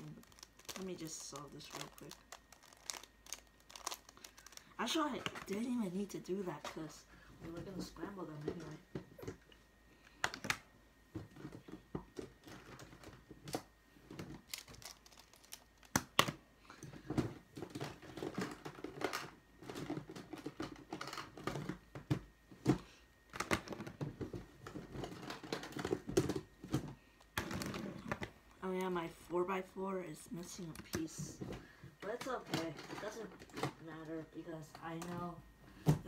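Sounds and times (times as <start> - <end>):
plastic cubes clicking and clacking: 23.3 - 28.3.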